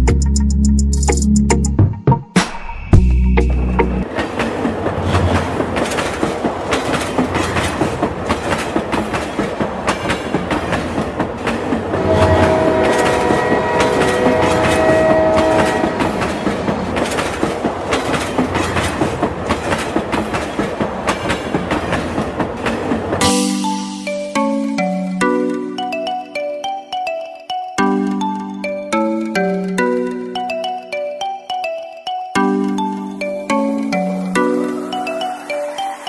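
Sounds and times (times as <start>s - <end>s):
train wheels clacking on rails: 4.0s - 23.5s
train horn chord: 11.9s - 16.8s.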